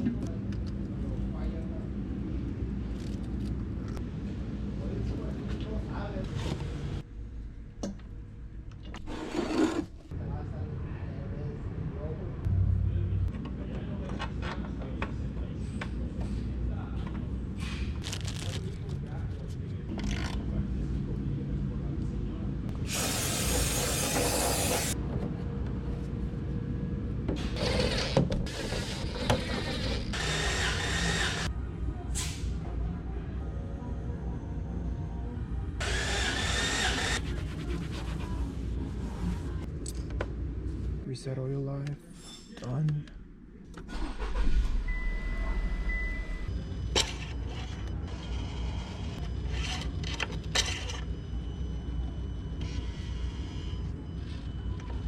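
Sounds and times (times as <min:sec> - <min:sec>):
car engine starting and idling: 0:43.7 - 0:46.5.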